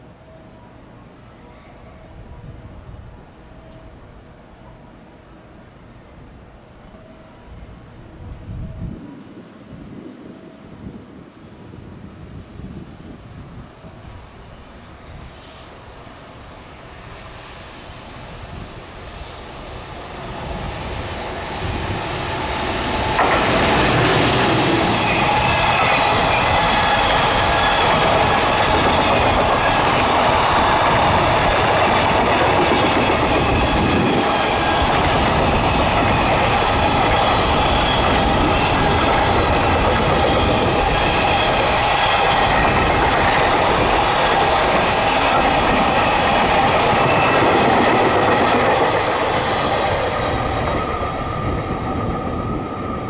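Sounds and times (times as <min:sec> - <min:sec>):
freight train wheel-on-rail noise: 0:00.0 - 0:53.0.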